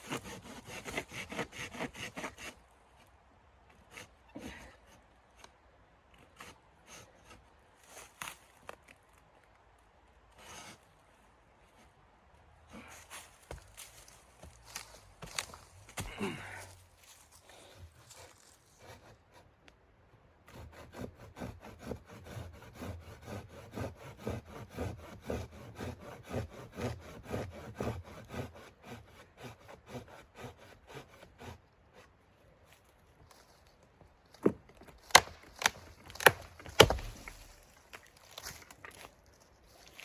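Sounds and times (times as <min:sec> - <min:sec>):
hand saw cutting wood: 0:00.0 - 0:02.6, 0:03.8 - 0:04.7, 0:10.4 - 0:10.8, 0:17.6 - 0:19.5, 0:20.5 - 0:32.1, 0:35.0 - 0:37.7.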